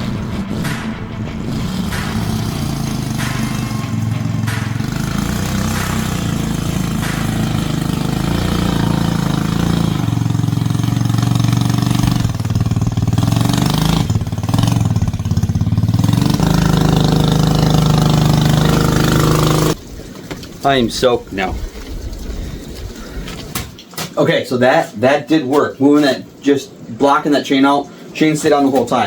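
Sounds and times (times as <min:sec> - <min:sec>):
mini bike engine under load: 0:01.7 - 0:20.4.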